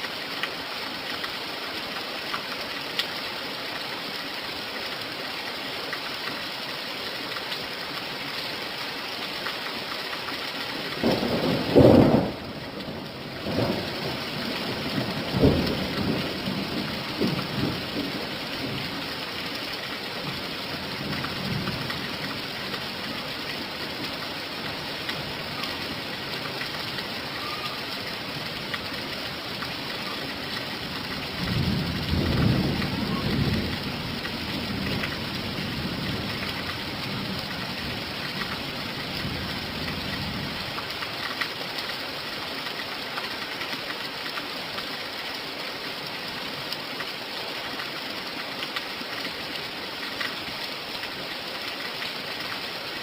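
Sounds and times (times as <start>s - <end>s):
steady rain falling: 0.0s - 53.0s
thunder burst and rumbling: 11.0s - 18.8s.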